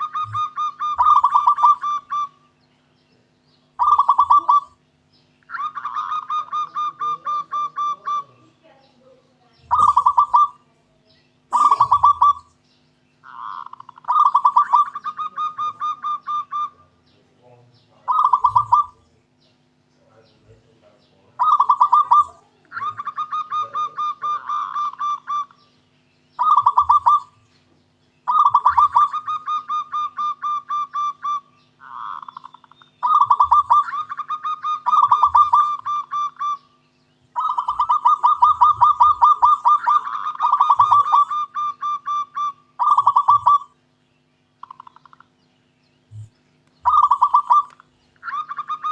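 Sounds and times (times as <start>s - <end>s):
dove cooing: 0.0s - 2.6s, 3.2s - 4.8s, 5.4s - 12.6s, 13.2s - 19.3s, 20.0s - 43.8s, 44.6s - 45.4s, 46.0s - 48.9s.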